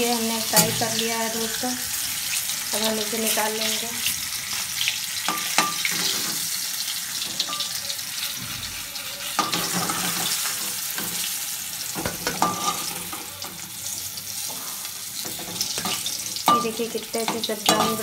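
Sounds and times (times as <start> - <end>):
vegetables sizzling in oil: 0.0 - 18.0
metal spatula scraping pan: 0.4 - 2.6.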